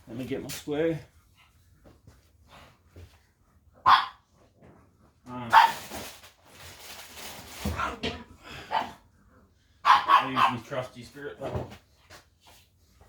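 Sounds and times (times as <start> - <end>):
dog barking: 3.8 - 4.2, 5.5 - 5.8, 8.7 - 9.0, 9.8 - 10.7.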